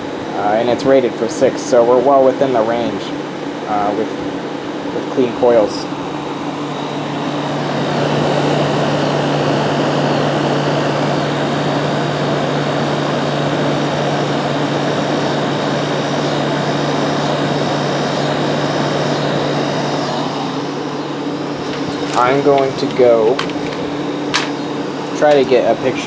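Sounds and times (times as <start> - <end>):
air conditioner fan blowing: 0.0 - 26.0
compressor hum: 21.4 - 26.0.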